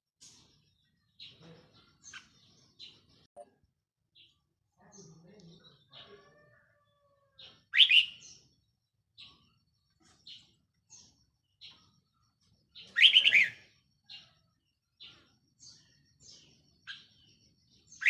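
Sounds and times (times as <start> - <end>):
bird warbling song: 0.2 - 3.4, 7.4 - 18.0
bird chirps: 0.2 - 3.6, 4.2 - 18.0.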